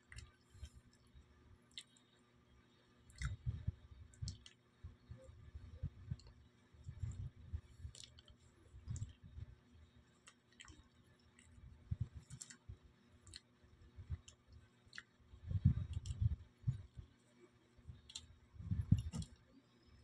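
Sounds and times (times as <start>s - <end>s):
person chewing: 3.1s - 3.4s, 7.8s - 8.3s, 10.2s - 11.5s
wet mouth clicks: 3.1s - 3.5s.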